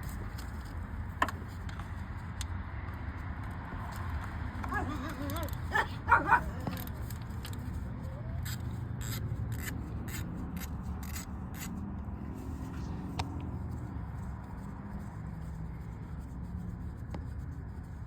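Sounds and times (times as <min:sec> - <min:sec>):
dog yelping: 0:04.6 - 0:07.1.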